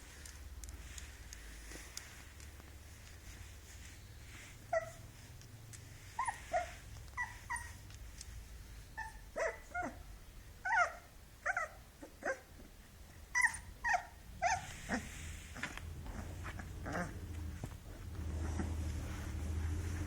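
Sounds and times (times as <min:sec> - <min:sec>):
puppy whimpering and yipping: 0:04.6 - 0:05.3, 0:06.1 - 0:07.9, 0:08.9 - 0:12.6, 0:13.3 - 0:17.3.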